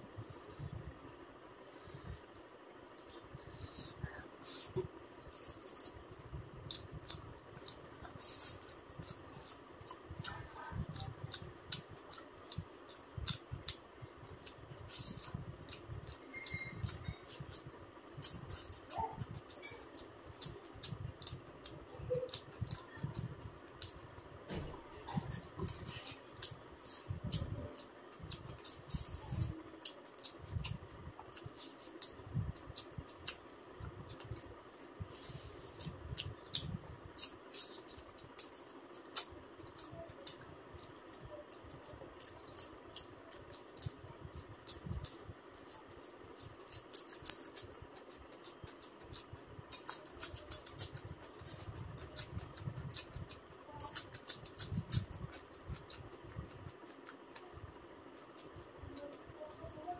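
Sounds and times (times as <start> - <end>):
person chewing: 1.0 - 24.3, 25.0 - 58.8.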